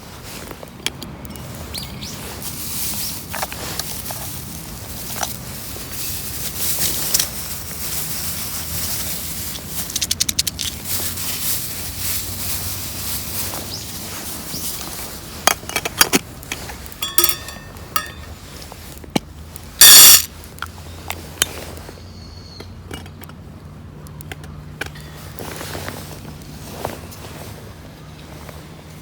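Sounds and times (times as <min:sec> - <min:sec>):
campfire hissing and crackling: 0:01.3 - 0:15.4, 0:16.0 - 0:21.9
rapid clicks: 0:09.5 - 0:10.8.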